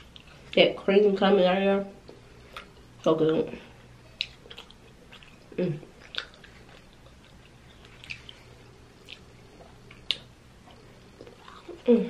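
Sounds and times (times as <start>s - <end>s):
wet mouth clicks chewing: 4.2s - 8.4s, 9.0s - 11.8s.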